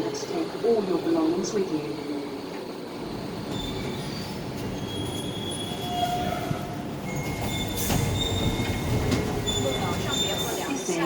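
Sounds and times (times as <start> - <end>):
train rumbling on rails: 0.0 - 11.0
high wheel squeals: 3.5 - 10.8.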